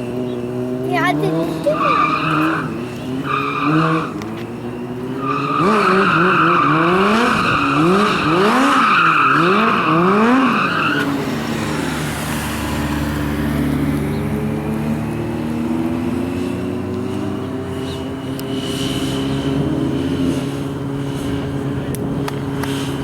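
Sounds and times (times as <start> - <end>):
motorcycle tyre squealing: 0.0 - 13.8
motorcycle engine revving: 0.0 - 23.0.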